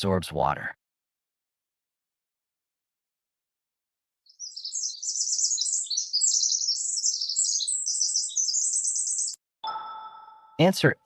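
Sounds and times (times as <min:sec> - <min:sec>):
songbird chirping: 0:04.3 - 0:11.0.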